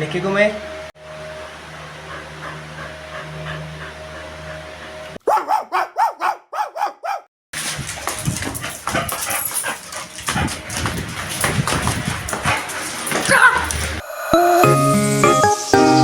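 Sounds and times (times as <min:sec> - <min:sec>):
dog barking: 0:05.2 - 0:07.3, 0:12.4 - 0:13.9.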